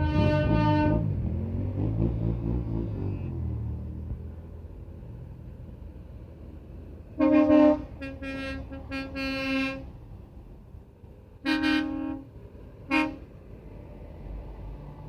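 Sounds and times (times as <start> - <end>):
truck horn blasts: 0.0 - 1.6, 7.1 - 9.9, 11.4 - 13.4
low rumble of engines: 0.0 - 15.0.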